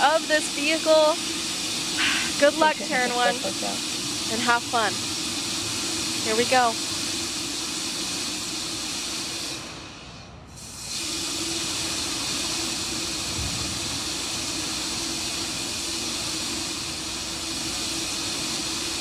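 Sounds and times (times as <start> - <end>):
constant low hum: 0.0 - 7.7
steady hissing: 0.0 - 19.0.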